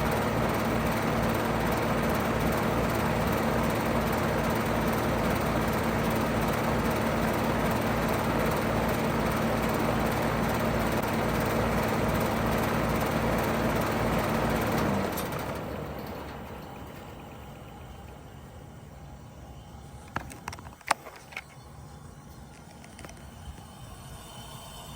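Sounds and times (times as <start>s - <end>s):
fan noise: 0.0s - 24.9s
heat pump humming: 0.0s - 24.9s.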